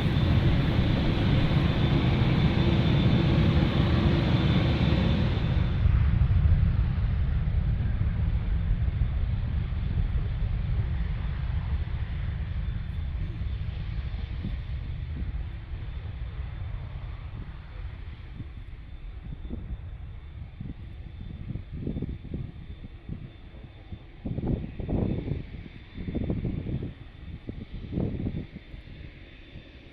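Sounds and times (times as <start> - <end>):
faint high whine: 0.0 - 5.9
gusty low buffets: 0.0 - 29.9
jet engines rumbling at takeoff: 0.0 - 29.9.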